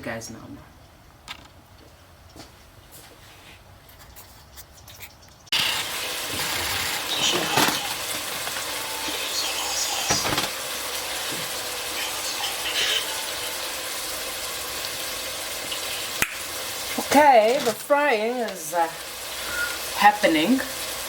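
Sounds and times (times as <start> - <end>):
utensil stirring in pot: 5.5 - 17.7
onions frying in oil: 5.5 - 21.0.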